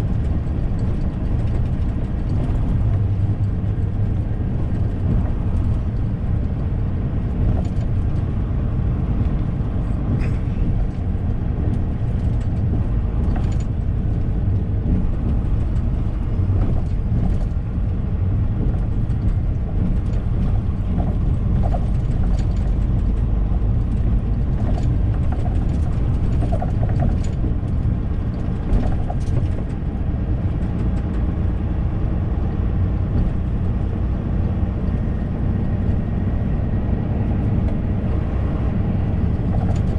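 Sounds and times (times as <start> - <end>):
truck engine and road rumble: 0.0 - 39.9
small rattles and clicks: 0.1 - 8.4, 9.0 - 31.4, 39.2 - 39.9.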